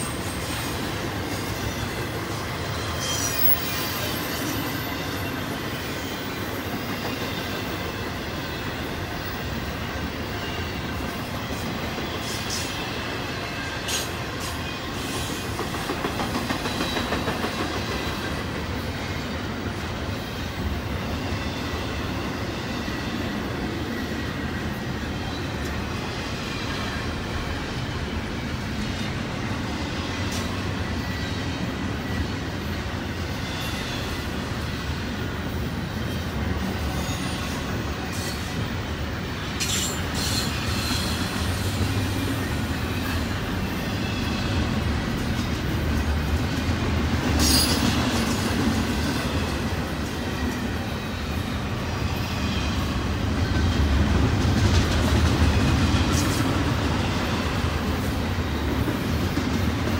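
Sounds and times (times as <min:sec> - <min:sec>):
high wheel squeal: 0:00.0 - 0:08.1, 0:39.6 - 0:44.8, 0:47.4 - 0:48.0
train wheels rumbling on rail: 0:00.0 - 0:59.9.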